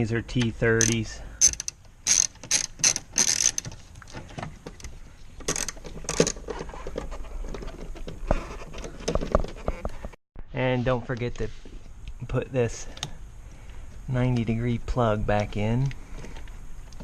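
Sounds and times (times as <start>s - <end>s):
hand ratchet clicking: 0.8s - 3.7s, 5.4s - 6.4s.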